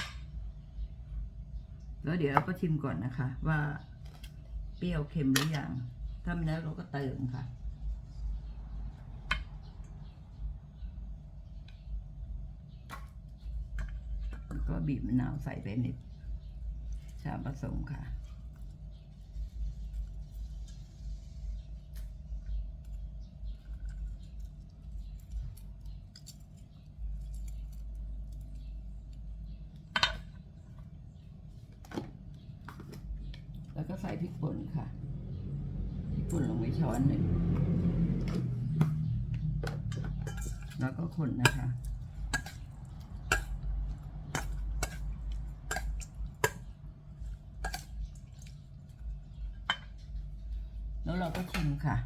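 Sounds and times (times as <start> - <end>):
small kitchen clicks and taps: 21.9 - 34.4, 37.2 - 50.6
low rumble: 33.0 - 52.0
spoon clinking against bowl: 39.6 - 48.6.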